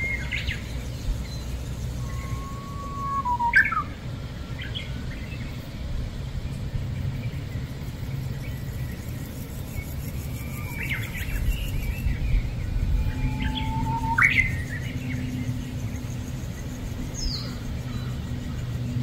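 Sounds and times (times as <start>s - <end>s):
wild birds calling: 0.0s - 5.9s, 8.5s - 19.0s
steady low rumble: 0.0s - 19.0s.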